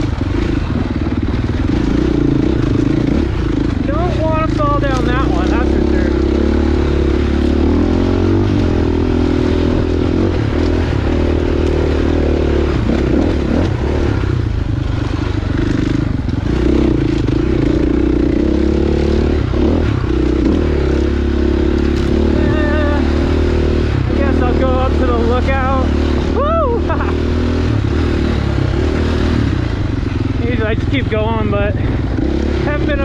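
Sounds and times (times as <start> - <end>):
dirt bike engine: 0.0 - 33.0.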